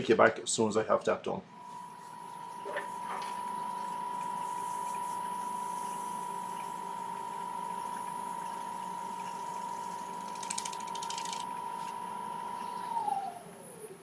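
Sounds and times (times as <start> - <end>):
wood lathe whine: 1.6 - 14.0
fast high rattle: 10.3 - 11.5.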